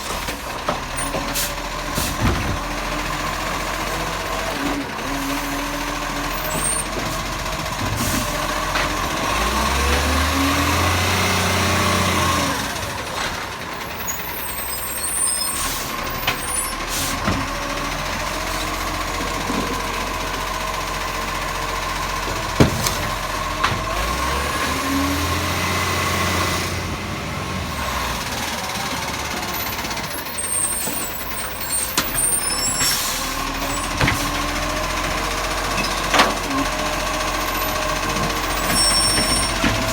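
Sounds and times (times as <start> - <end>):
truck engine revving: 0.0 - 39.9
air brake hissing: 14.4 - 17.3, 32.2 - 33.4.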